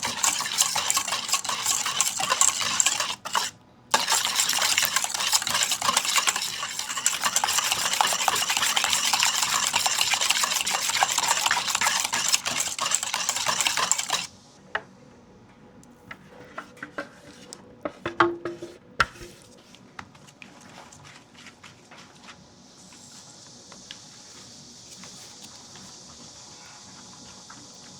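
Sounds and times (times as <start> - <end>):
batter stirred in mixing bowl: 0.0 - 14.3
utensils and dishes clinking: 0.0 - 14.3.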